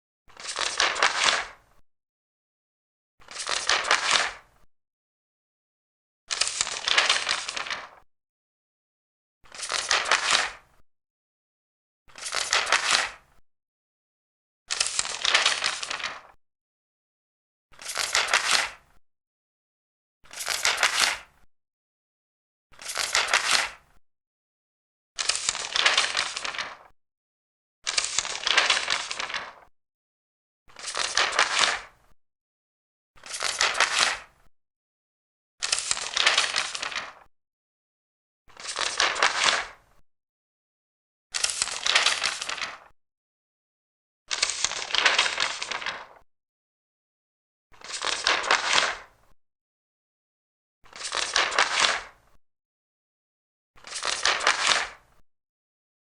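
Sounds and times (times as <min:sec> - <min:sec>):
paper pages turning: 0:00.4 - 0:01.6, 0:03.2 - 0:04.4, 0:06.3 - 0:08.0, 0:09.5 - 0:10.6, 0:12.1 - 0:13.2, 0:14.8 - 0:16.4, 0:17.8 - 0:18.8, 0:20.3 - 0:21.3, 0:22.8 - 0:23.8, 0:25.2 - 0:26.9, 0:27.9 - 0:29.7, 0:30.7 - 0:31.9, 0:33.2 - 0:34.3, 0:35.6 - 0:37.3, 0:38.5 - 0:39.8, 0:41.4 - 0:42.9, 0:44.3 - 0:46.2, 0:47.8 - 0:49.1, 0:50.9 - 0:52.1, 0:53.8 - 0:55.0.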